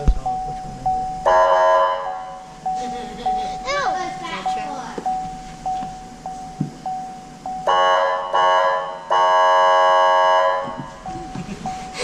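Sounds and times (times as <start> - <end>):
steady tone: 0.0 - 12.0
fire truck horn blasts: 1.2 - 2.5, 7.7 - 11.0.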